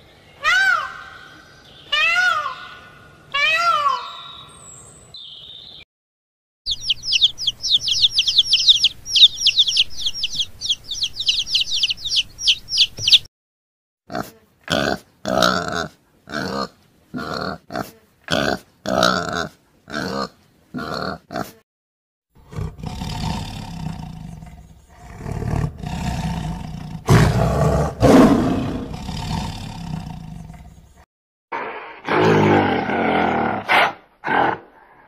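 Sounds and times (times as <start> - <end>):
piglets calling: 1.9 - 4.5, 6.7 - 13.3
tiger growling and roaring: 22.4 - 30.9, 31.6 - 35.0.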